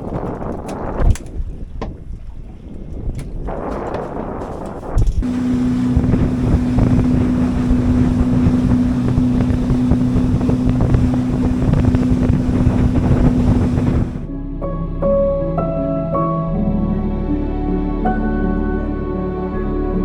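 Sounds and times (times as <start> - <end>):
wind on microphone: 0.0 - 14.3
outboard motor running: 5.2 - 14.3.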